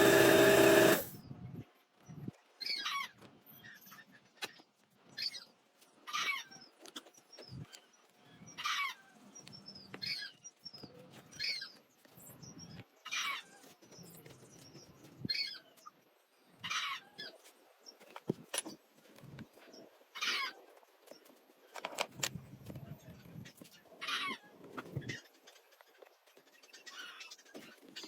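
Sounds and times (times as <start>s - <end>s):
hand tool scraping wood: 0.0s - 1.2s.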